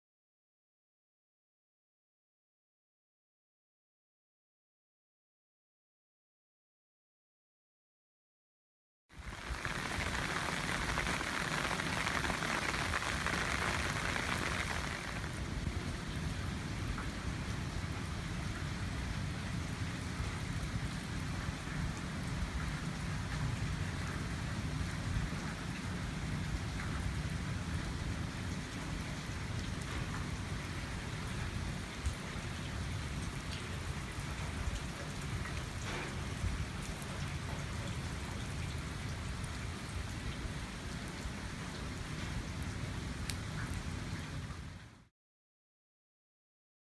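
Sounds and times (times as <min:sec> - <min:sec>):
heavy rain hiss: 0:09.2 - 0:44.8
continuous low rumble: 0:09.2 - 0:45.1.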